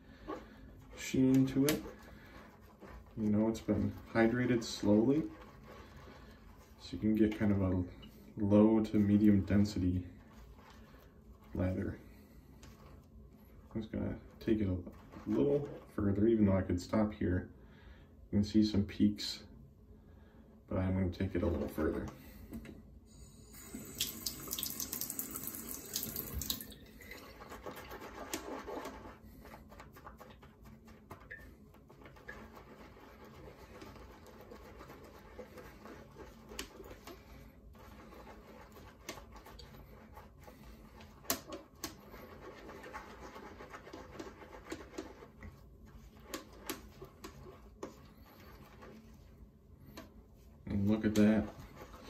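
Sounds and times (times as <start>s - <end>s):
shaving brush whipping lather: 0.9s - 7.6s.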